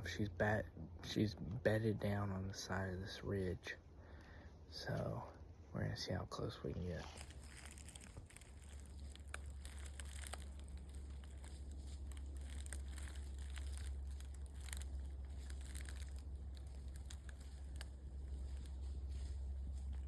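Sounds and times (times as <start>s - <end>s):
steady low rumble: 0.0s - 20.0s
footsteps crunching in dry leaves: 6.8s - 20.0s.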